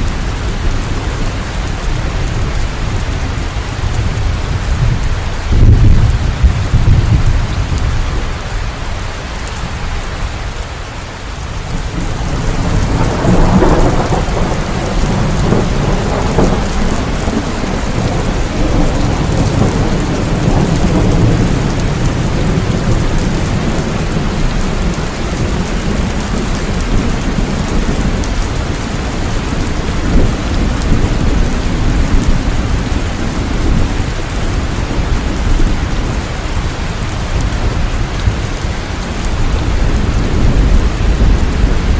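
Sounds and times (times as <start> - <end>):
rolling thunder: 0.0 - 8.5, 11.6 - 41.9
heavy rain: 0.0 - 41.9.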